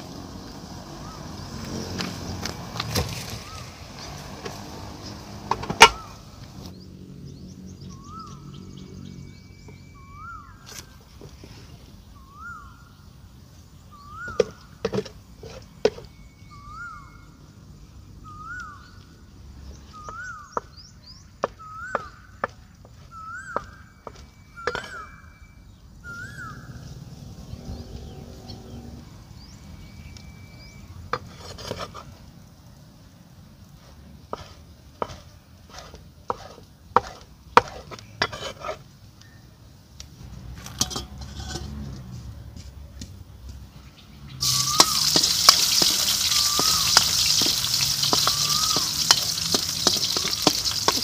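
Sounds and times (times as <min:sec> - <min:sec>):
bird whistling: 0:16.1 - 0:17.3, 0:18.2 - 0:18.9, 0:21.6 - 0:22.3, 0:23.1 - 0:26.7, 0:44.4 - 0:49.4.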